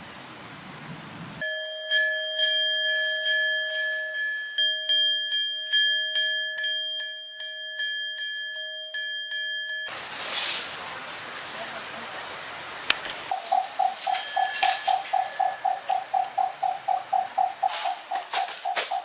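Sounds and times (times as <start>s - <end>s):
faint hiss: 9.9s - 15.1s.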